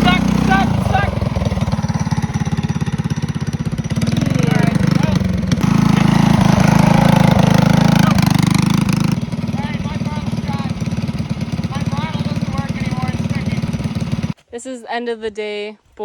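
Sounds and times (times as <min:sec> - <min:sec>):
small engine running: 0:00.0 - 0:14.4.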